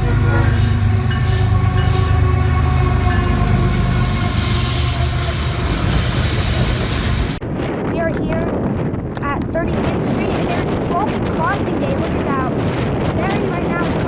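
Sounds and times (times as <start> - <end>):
train deep rumble: 0.0 - 7.4.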